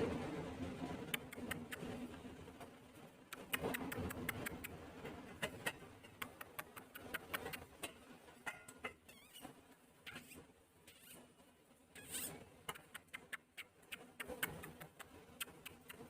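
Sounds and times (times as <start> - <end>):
parrot beak and claws clicking: 1.1 - 1.9, 3.3 - 4.8, 5.4 - 7.7, 12.7 - 16.0
parrot squeak: 9.1 - 9.5, 10.1 - 11.2.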